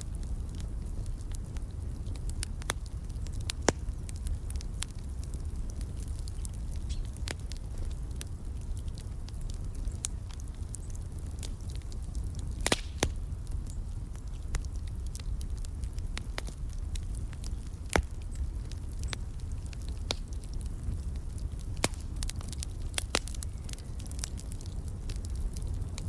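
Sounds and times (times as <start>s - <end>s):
loud fire pops: 0.0s - 26.0s
wood fire crackling: 0.0s - 26.0s.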